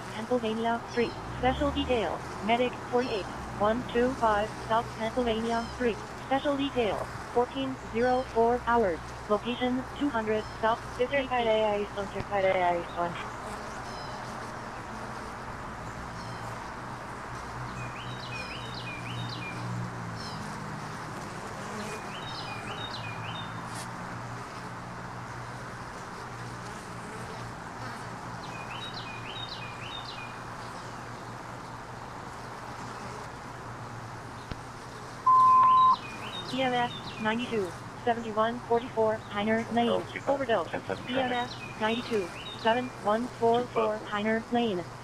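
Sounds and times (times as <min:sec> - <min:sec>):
honeybees humming: 0:00.0 - 0:45.0
bird singing: 0:16.2 - 0:16.5, 0:17.7 - 0:19.6, 0:21.9 - 0:23.6, 0:28.4 - 0:31.0, 0:35.3 - 0:38.3, 0:39.2 - 0:42.9
radio scanner beep: 0:35.3 - 0:36.0, 0:39.7 - 0:42.1.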